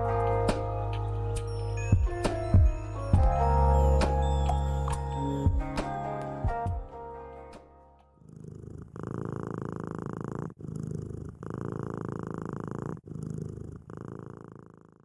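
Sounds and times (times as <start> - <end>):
cat purring: 8.2 - 15.0.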